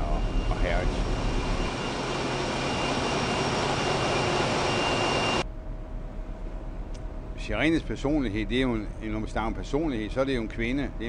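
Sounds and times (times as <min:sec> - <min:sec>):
ship engine machinery noise: 0:00.0 - 0:11.0
quiet hum with faint tone: 0:05.4 - 0:11.0.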